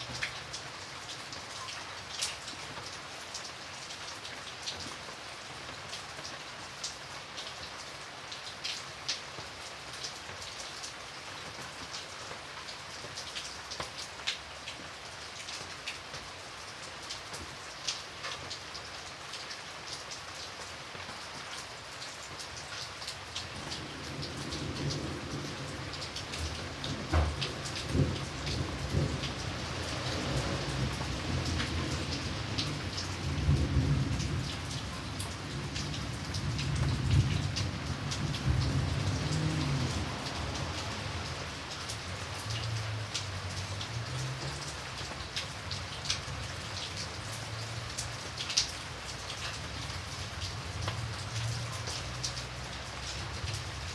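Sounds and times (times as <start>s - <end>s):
steady rain with tapping drops: 0.0s - 53.9s
low rumble of thunder: 23.6s - 41.3s.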